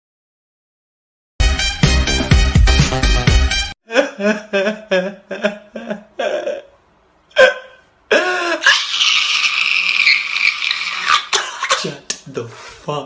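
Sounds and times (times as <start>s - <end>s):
person hiccuping: 7.3s - 8.9s, 11.0s - 12.1s.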